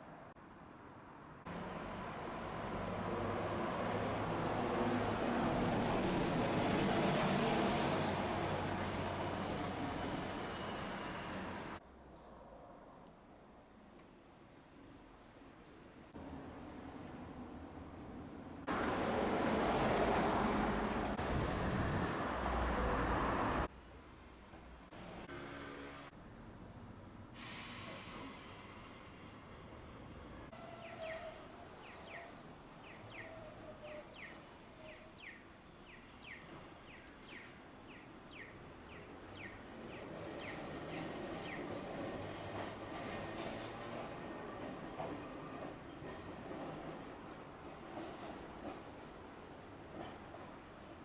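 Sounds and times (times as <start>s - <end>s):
streetcar running on tracks: 1.4s - 11.8s, 16.1s - 51.0s
loud rushing hiss: 27.4s - 29.8s.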